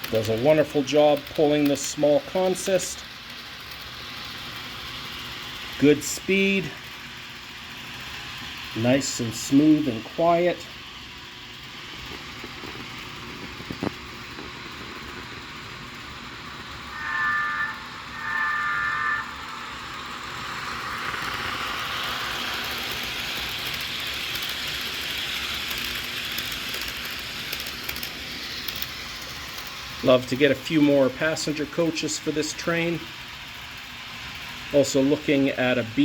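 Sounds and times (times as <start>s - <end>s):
model train running sound: 0.0s - 36.0s
train horn blasts: 16.9s - 19.9s.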